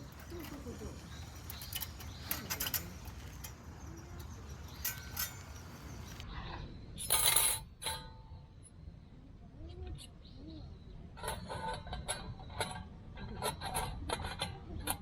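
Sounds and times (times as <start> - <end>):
sheet metal clinking and scraping: 0.0 - 6.2
short metallic rings: 0.0 - 6.2.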